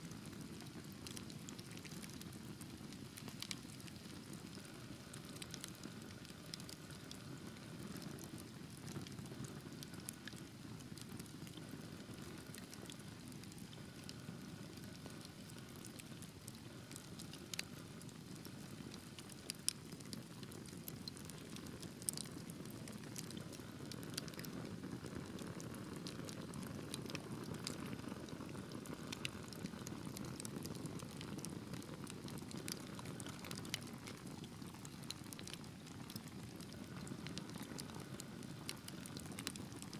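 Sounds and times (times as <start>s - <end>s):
fire crackling and popping: 0.2s - 39.9s.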